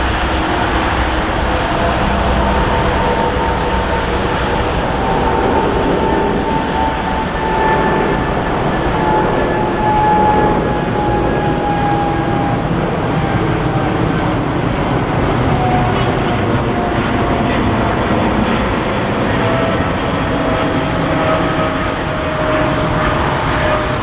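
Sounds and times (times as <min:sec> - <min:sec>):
jet engines passing: 0:00.0 - 0:24.0.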